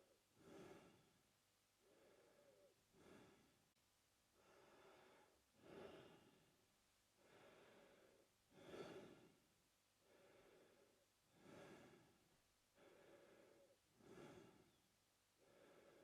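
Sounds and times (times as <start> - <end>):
man breathing through mouth: 10.0 - 12.2, 12.8 - 14.8.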